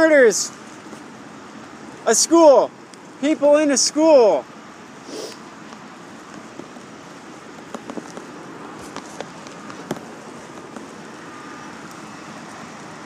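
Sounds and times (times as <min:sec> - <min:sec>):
rain hissing: 0:04.6 - 0:13.0.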